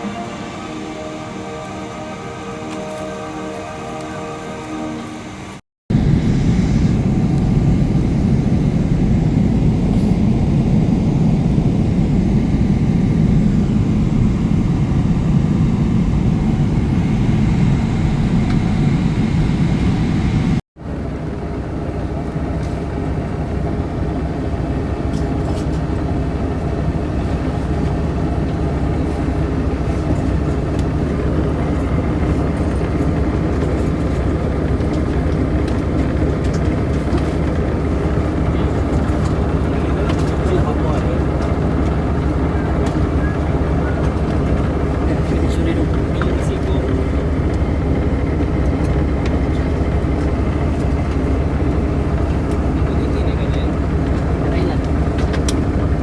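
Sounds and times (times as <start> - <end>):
jet engine cabin rumble: 0.0 - 56.0.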